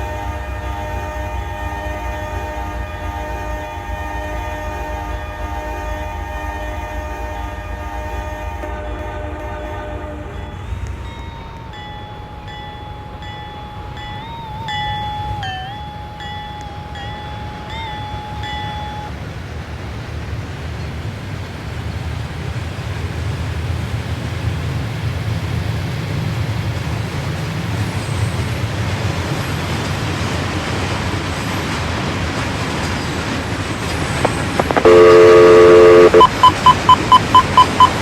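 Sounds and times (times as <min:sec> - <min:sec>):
locomotive air horn blast: 0:00.0 - 0:11.0, 0:34.4 - 0:36.6
freight train rumble: 0:00.0 - 0:38.0
quick beeps: 0:34.3 - 0:38.0.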